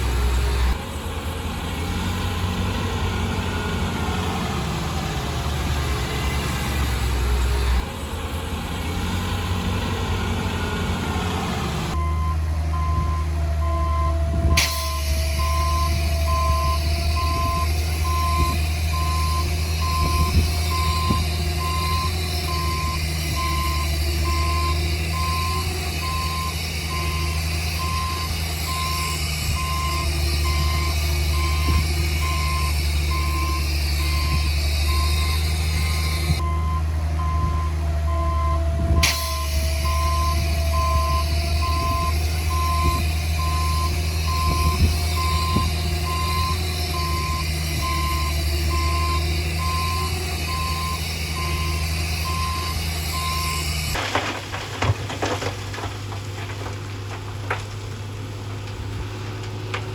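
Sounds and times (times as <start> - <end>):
reversing alarm beeping: 11.9 - 54.0.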